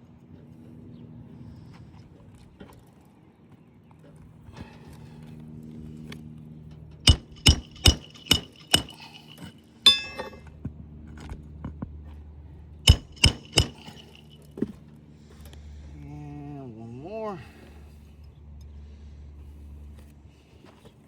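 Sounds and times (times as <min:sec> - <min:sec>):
hammer striking roofing nails: 0:07.1 - 0:10.3, 0:12.9 - 0:14.3
sharp metallic clang: 0:07.1 - 0:10.4, 0:12.9 - 0:14.4.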